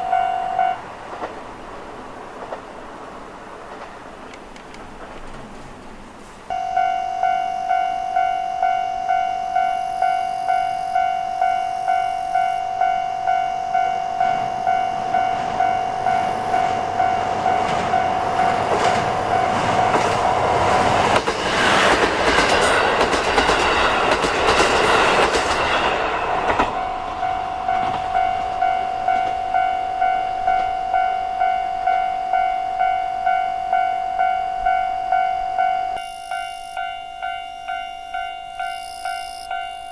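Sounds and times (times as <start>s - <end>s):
level-crossing bell dinging: 0.0s - 0.9s, 6.5s - 20.6s, 26.5s - 39.9s
diesel train passing: 0.0s - 39.9s.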